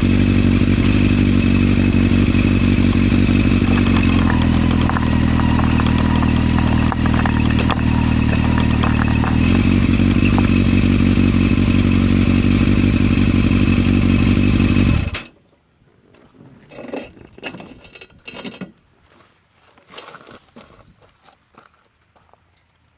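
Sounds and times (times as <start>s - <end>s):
motorcycle engine running: 0.0s - 15.3s
faint clatters and knocks: 3.6s - 10.5s.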